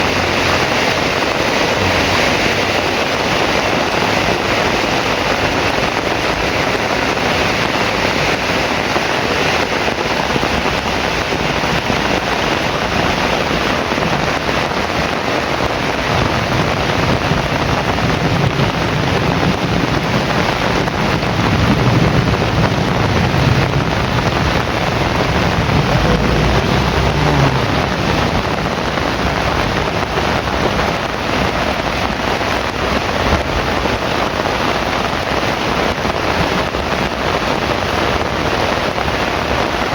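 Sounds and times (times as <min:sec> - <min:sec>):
heavy rain pouring: 0:00.0 - 0:39.9
low rumble of thunder: 0:15.8 - 0:32.3.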